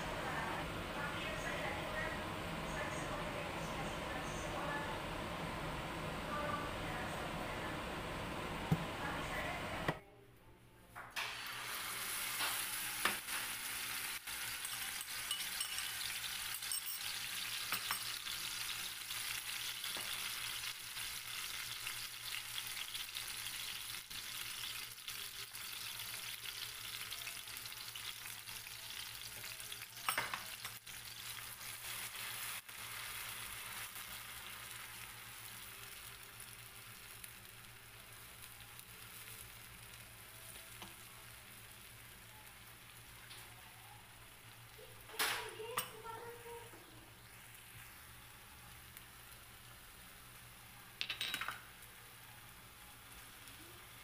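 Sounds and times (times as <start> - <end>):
paste sizzling in oil: 11.2 - 43.2.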